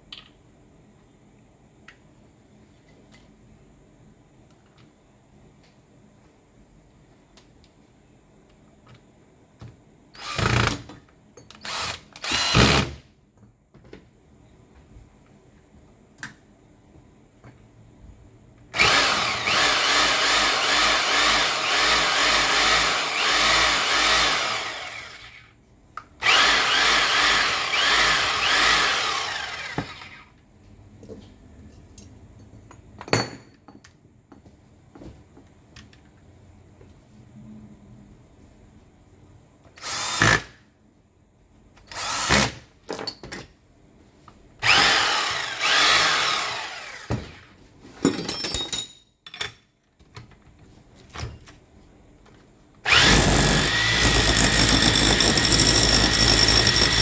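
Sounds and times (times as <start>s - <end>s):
electric hammer pounding: 52.9s - 57.0s.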